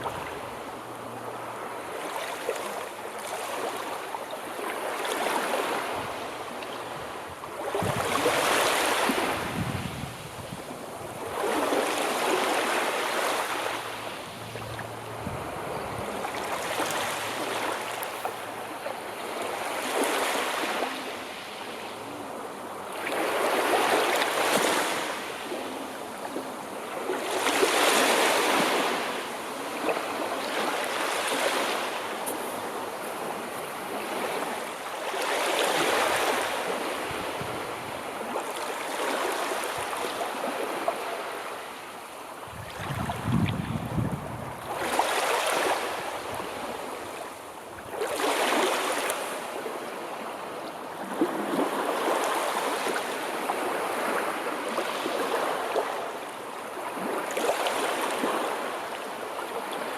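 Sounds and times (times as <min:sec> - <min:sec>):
sea waves breaking on shore: 0:00.0 - 0:59.9.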